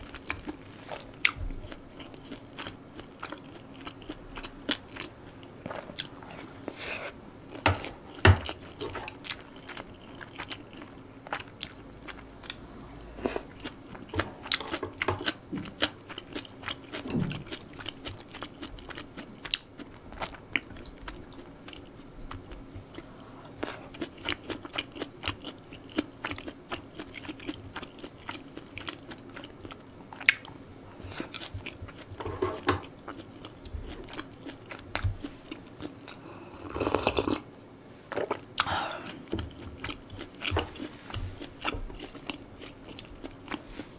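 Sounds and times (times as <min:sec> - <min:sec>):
biting and chewing food: 0:07.5 - 0:36.2, 0:38.1 - 0:43.9.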